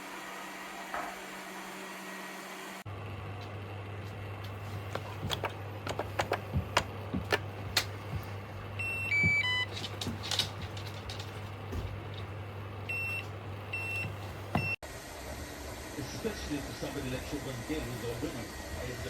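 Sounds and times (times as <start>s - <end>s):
steady low hum: 2.8s - 19.0s
robot vacuum electronic beeps: 8.8s - 9.7s, 12.9s - 14.8s.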